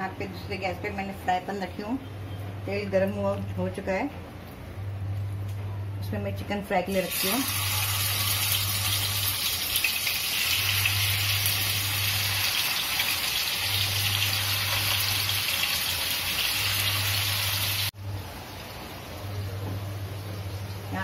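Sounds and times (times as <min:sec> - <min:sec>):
chicken sizzling in hot oil: 0:07.0 - 0:19.1.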